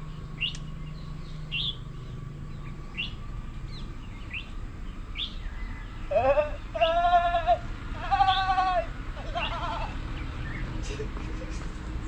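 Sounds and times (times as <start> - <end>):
bird rising chirps: 0.1 - 6.0.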